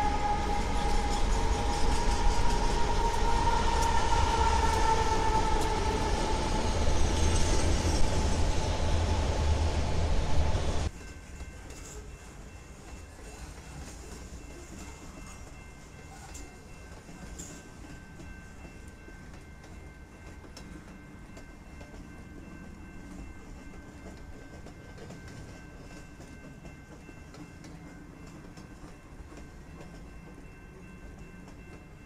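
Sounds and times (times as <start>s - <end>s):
freight train rumbling: 0.0s - 32.0s
train wheel clicks: 12.8s - 32.0s.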